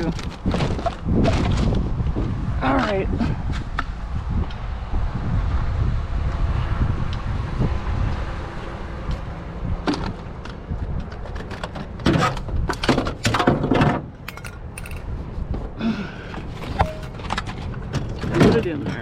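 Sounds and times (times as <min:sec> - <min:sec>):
scrap metal clattering: 0:13.8 - 0:15.1, 0:16.6 - 0:17.6.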